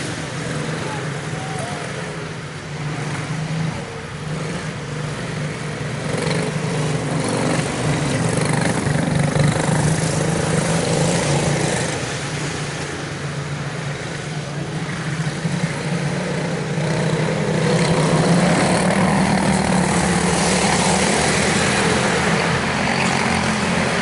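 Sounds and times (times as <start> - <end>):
race car engines droning: 0.0 - 24.0.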